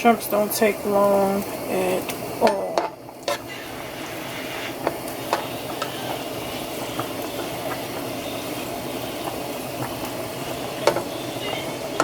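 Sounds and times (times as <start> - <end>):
shrimp sizzling in hot oil: 0.0 - 12.0
oil pops and crackles: 3.9 - 12.0.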